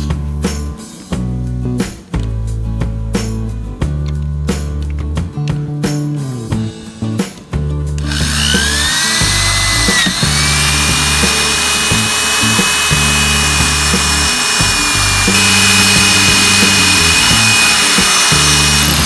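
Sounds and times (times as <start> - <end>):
background music with bass: 0.0 - 19.0
power tool whining: 8.0 - 19.0.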